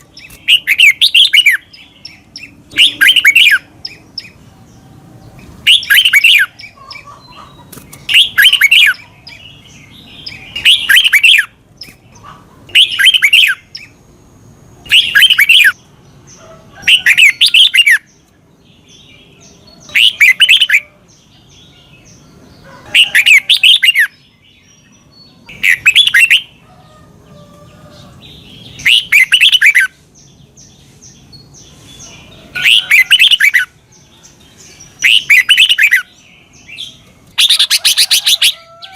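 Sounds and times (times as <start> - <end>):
faint bird chattering: 0.0 - 14.1, 19.2 - 38.9
bulbul whistled song: 14.9 - 15.8, 25.5 - 26.5.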